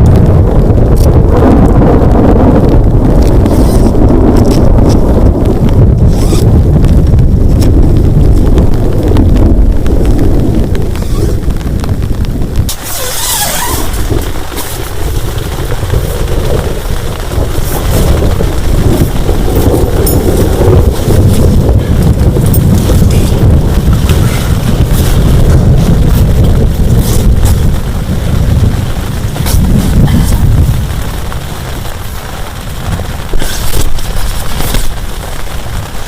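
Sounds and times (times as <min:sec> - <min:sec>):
heavy rain pouring: 0:00.0 - 0:36.0
wind buffeting microphone: 0:00.0 - 0:36.0.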